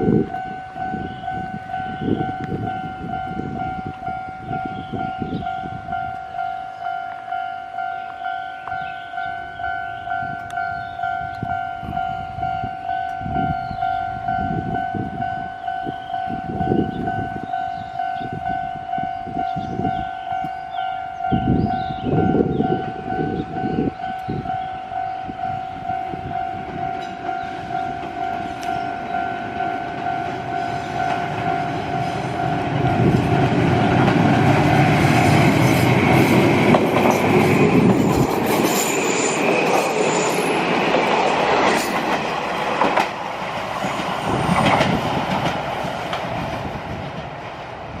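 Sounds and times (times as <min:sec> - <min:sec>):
pulsing warning tone: 0:00.0 - 0:40.7
high squeal of train wheels: 0:00.0 - 0:42.4
train wheels clicking on rails: 0:26.7 - 0:48.0.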